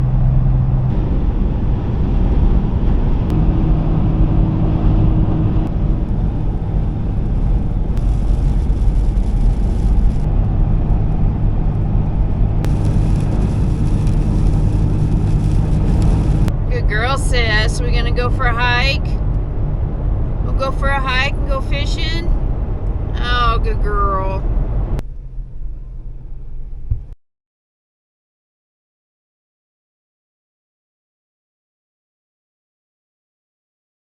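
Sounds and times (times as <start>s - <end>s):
vehicle engine and road rumble: 0.0s - 27.2s.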